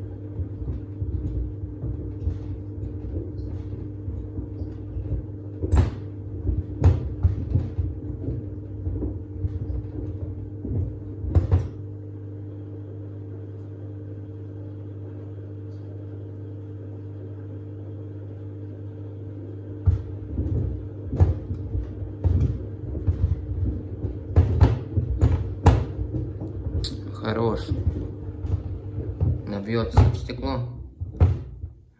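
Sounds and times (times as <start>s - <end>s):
sneakers thumping in drum: 0.0s - 11.9s, 19.8s - 31.9s
washing machine motor hum: 0.0s - 31.9s.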